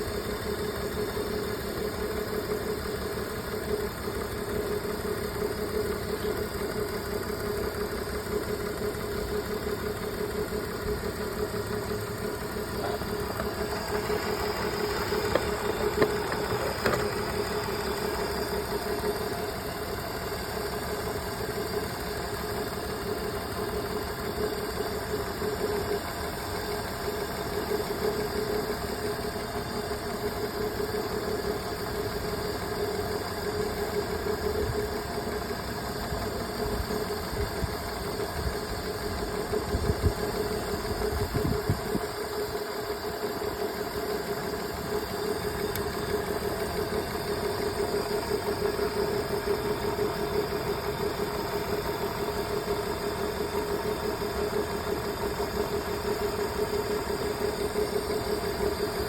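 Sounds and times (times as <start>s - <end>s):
car engine idling: 0.1s - 23.8s.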